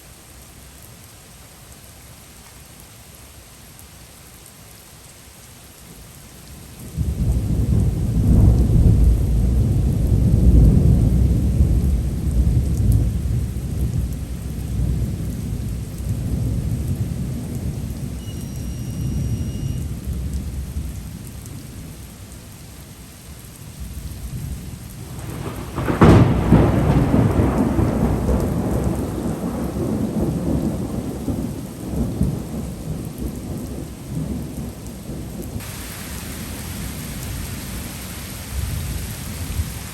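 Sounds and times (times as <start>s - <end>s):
heavy rain: 0.0s - 39.9s
thunder rumbling: 7.0s - 21.2s, 24.4s - 39.9s
sharp thunder crack: 25.0s - 31.0s.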